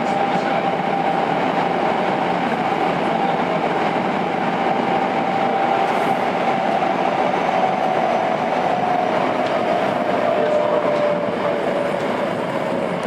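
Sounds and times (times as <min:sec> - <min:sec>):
subway train motor whine: 0:00.0 - 0:13.0
train wheel and running noise: 0:00.0 - 0:13.0.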